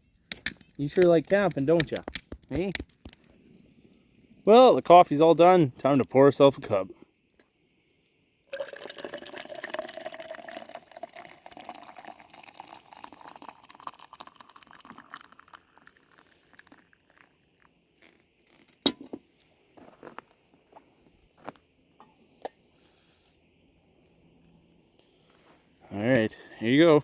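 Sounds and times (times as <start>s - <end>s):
coffee pouring into a cup: 8.5s - 17.4s.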